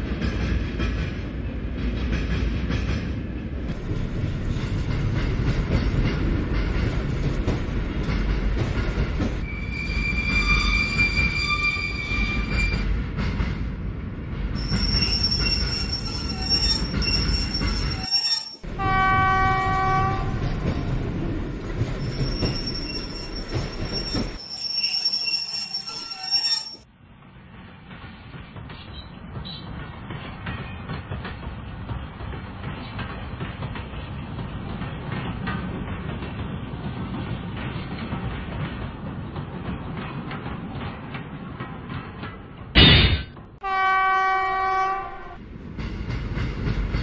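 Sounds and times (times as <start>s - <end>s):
train rumbling: 0.0s - 47.0s
wheels squealing: 14.6s - 18.7s, 21.8s - 26.9s
train horn blast: 18.7s - 20.4s, 43.6s - 45.4s.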